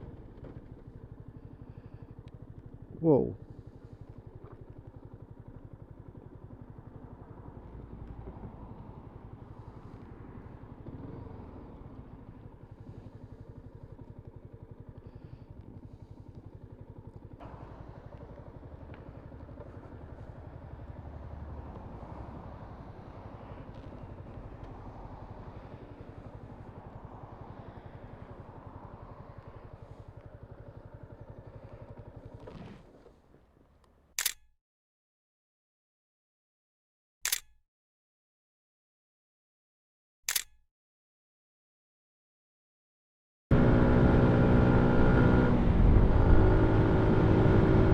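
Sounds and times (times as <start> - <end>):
motorcycle engine running: 0.0 - 34.1, 43.5 - 47.9
sharp click: 34.2 - 34.5, 37.2 - 37.6, 40.3 - 40.6.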